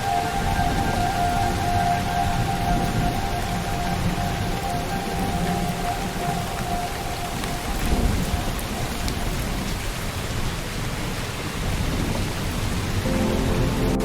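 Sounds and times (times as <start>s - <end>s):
steady rainfall: 0.0s - 14.0s
thunder rumble: 0.0s - 14.0s.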